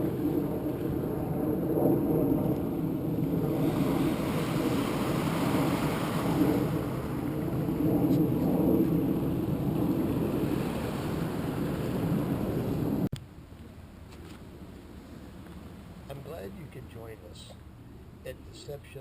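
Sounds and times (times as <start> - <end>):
rushing wind-like noise: 0.0 - 13.1.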